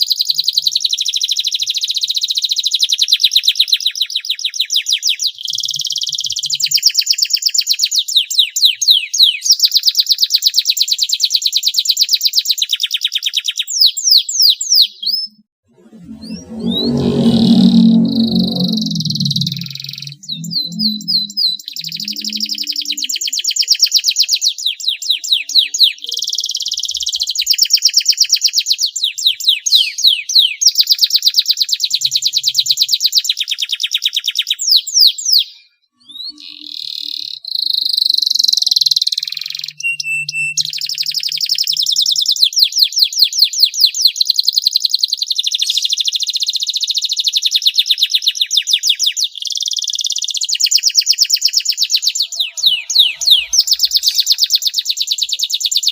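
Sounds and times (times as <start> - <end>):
canary singing trills: 14.8 - 23.7, 51.5 - 55.6.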